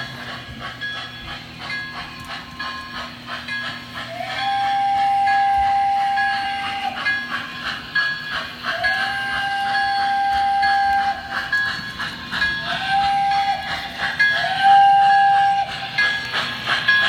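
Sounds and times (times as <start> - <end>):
rhythmic locomotive chuffing: 0.0 - 17.0
model train steam whistle: 4.0 - 7.5, 8.7 - 11.7, 12.6 - 16.3.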